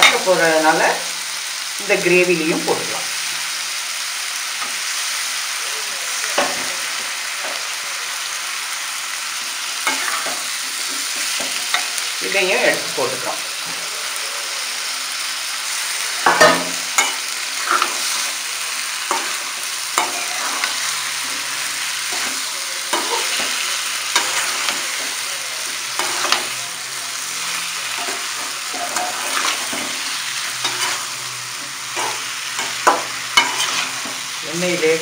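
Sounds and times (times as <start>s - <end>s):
eggplant frying in oil: 0.0s - 35.0s
spatula scraping pan: 9.6s - 12.0s, 16.2s - 35.0s.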